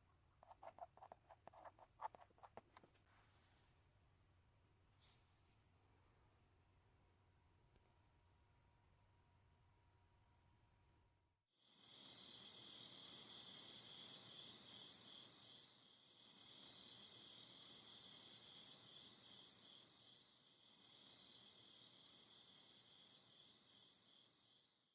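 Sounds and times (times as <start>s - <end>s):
insects chirping: 11.6s - 24.9s.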